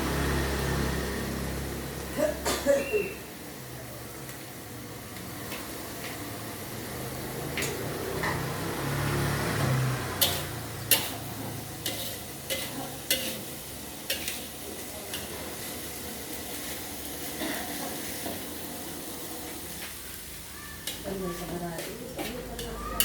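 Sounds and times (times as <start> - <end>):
rice sizzling in a frying pan: 0.0 - 23.0
spatula clanking on pan: 10.1 - 15.7, 20.7 - 23.0.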